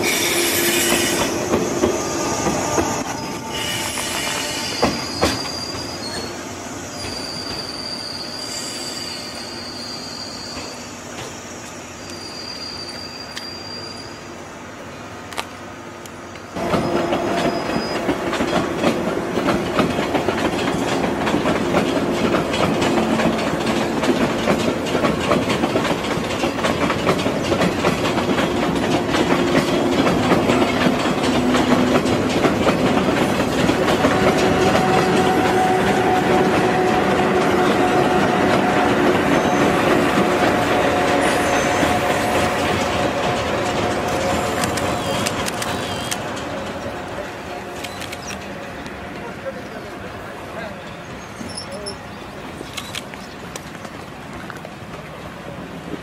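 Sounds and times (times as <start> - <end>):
train wheels clickety-clack: 0.0 - 6.4, 15.3 - 50.7.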